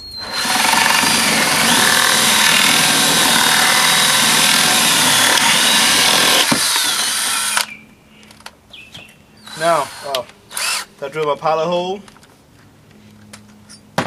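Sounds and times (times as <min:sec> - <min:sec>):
power drill boring into wood: 0:00.2 - 0:07.7, 0:09.4 - 0:10.9.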